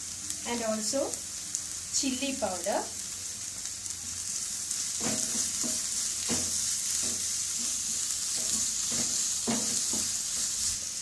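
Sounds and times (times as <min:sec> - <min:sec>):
food sizzling in hot oil: 0:00.0 - 0:11.0
spatula scraping and stirring: 0:04.7 - 0:10.8.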